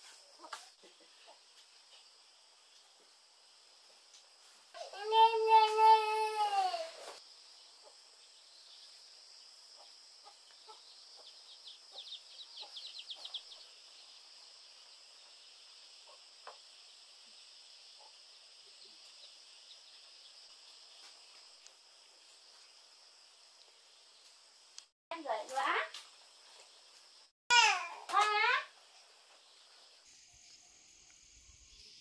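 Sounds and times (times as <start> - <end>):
bird singing chirps: 10.6 - 15.1
high insect drone: 28.3 - 32.0.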